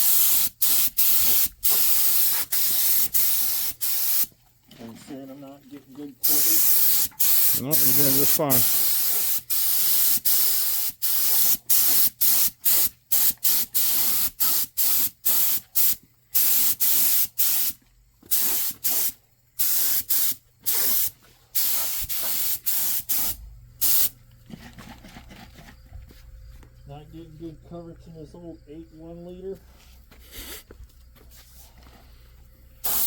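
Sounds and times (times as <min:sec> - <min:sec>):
spray gun hissing bursts: 0:00.0 - 0:04.3, 0:06.2 - 0:24.1.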